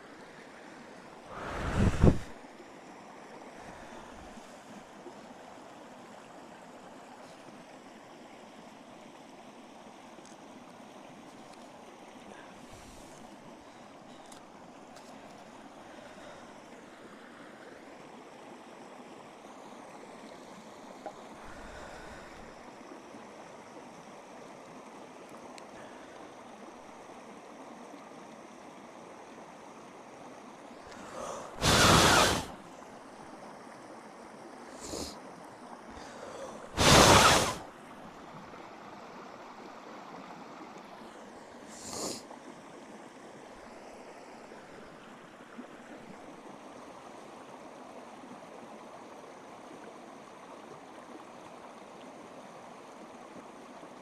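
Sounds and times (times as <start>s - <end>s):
steady rushing hiss: 1.2s - 2.5s, 30.9s - 32.6s, 34.7s - 35.2s, 36.0s - 37.7s, 41.7s - 42.2s
breathy blasts: 1.3s - 2.4s, 30.9s - 32.6s, 36.0s - 37.6s.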